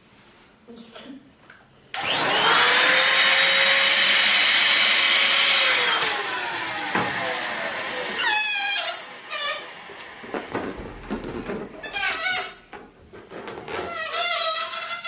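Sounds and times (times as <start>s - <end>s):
motor whirring: 2.0s - 10.6s.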